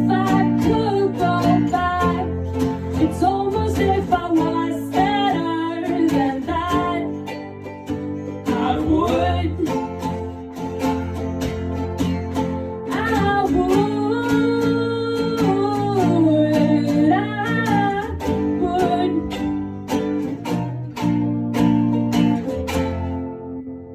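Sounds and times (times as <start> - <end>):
person singing: 0.0 - 10.8, 12.7 - 20.2
acoustic guitar strumming: 0.0 - 23.9.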